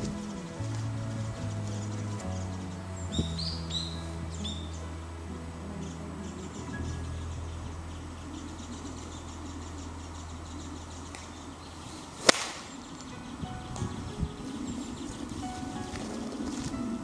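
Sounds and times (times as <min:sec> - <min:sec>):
golf club striking ball: 0:12.2 - 0:12.7.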